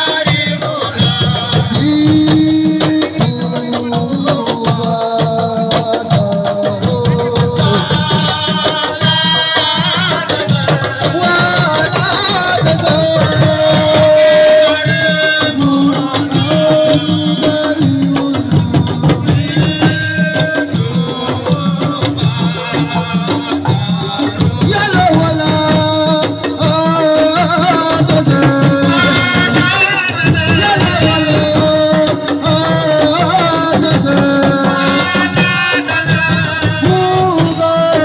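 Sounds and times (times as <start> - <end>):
fast hand drum percussion: 0.0 - 38.0.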